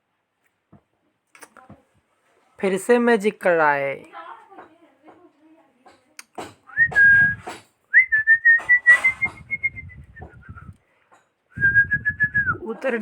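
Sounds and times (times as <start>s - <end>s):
whistled notes: 6.7s - 10.8s, 11.6s - 12.7s.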